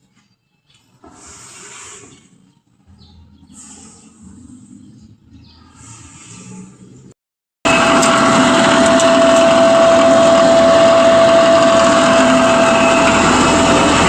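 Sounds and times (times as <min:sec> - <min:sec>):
electric blower fan running: 0:07.7 - 0:14.0.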